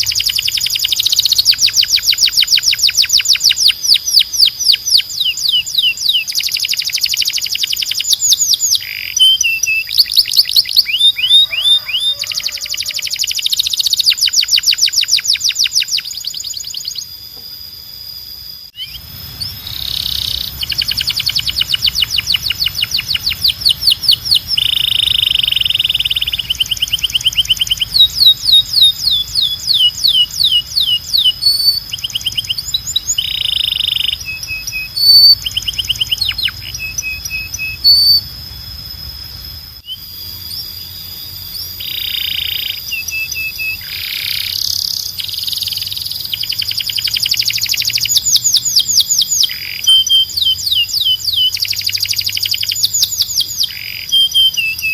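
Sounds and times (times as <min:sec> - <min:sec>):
canary singing trills: 0:00.0 - 0:54.9
low background hum: 0:00.0 - 0:54.9.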